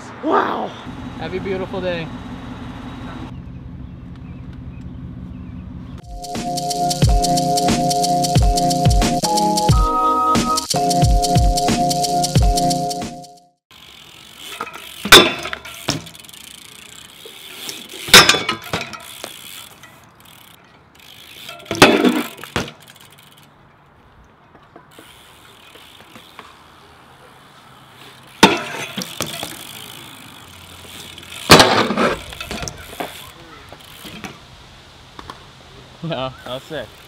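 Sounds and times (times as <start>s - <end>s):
freewheeling hubs and chains clicking: 13.7s - 23.6s, 24.9s - 26.4s, 27.7s - 31.6s, 32.2s - 34.2s
bmx bike landing impacts: 14.4s - 16.6s, 17.3s - 23.0s, 28.3s - 34.4s.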